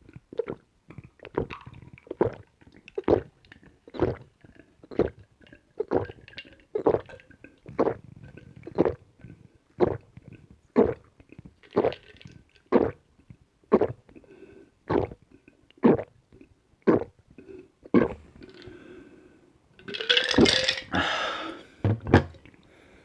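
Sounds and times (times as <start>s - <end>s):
person gulping a drink: 3.9s - 13.0s, 13.7s - 14.2s, 14.9s - 19.0s, 19.8s - 22.6s
breathy exhale: 20.9s - 21.8s.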